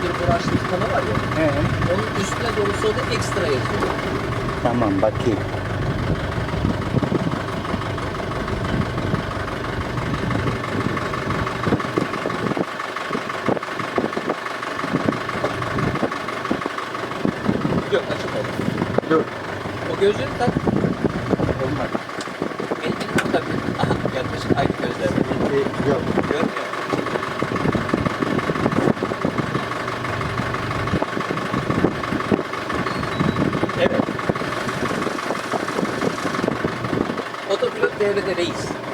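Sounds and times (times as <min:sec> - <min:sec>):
irregular low thumps: 0:00.0 - 0:12.6
boat engine hum: 0:00.0 - 0:38.9.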